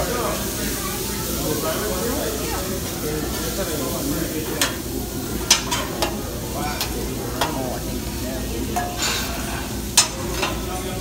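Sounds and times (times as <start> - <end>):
rice sizzling on griddle: 0.0 - 11.0
spatula clacking on steel: 4.5 - 4.8, 5.4 - 7.9, 8.7 - 9.2, 9.9 - 10.7.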